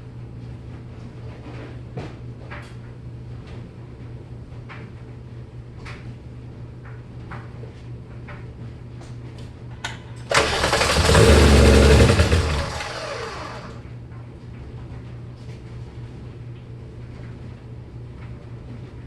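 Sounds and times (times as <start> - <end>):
car engine cranking: 10.3 - 13.8.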